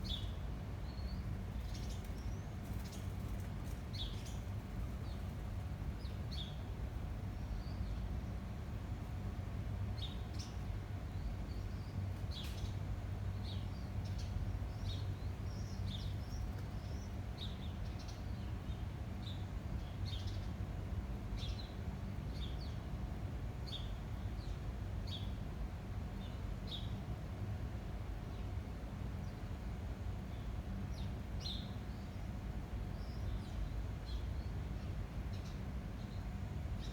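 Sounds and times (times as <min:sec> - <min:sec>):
small birds chirping: 0:00.0 - 0:08.1, 0:09.9 - 0:20.6, 0:30.3 - 0:36.9.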